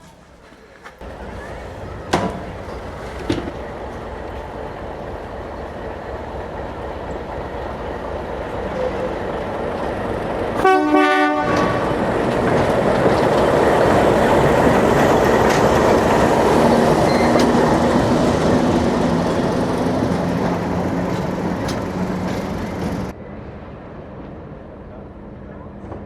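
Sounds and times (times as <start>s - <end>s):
train running noise: 0.0s - 26.0s
train whistle blast: 10.6s - 11.9s.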